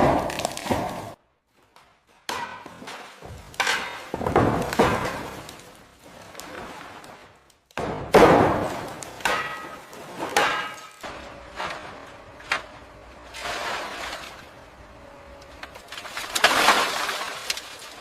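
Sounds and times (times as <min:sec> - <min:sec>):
loud grinding crash: 0:15.8 - 0:18.0.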